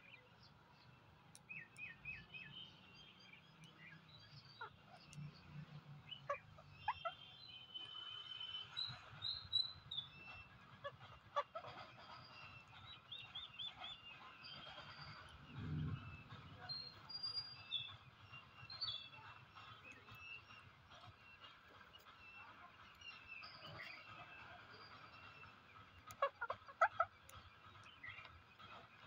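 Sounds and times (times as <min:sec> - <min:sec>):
birds chirping and whistling: 0:00.0 - 0:29.0
brief low rumble: 0:15.4 - 0:16.6.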